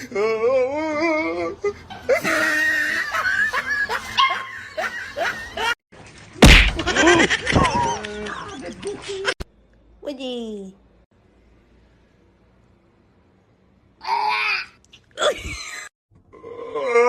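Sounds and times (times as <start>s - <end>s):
people laughing: 2.0s - 5.8s, 6.8s - 9.4s.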